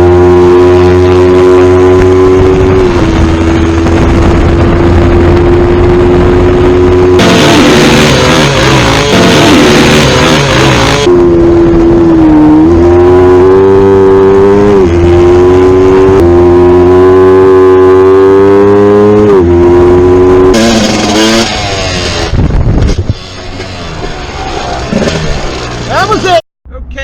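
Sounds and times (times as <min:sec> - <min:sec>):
rushing noise: 0:00.0 - 0:18.8, 0:19.6 - 0:26.4
motocross bike engine revving: 0:00.0 - 0:26.0
low rumble: 0:00.9 - 0:16.8.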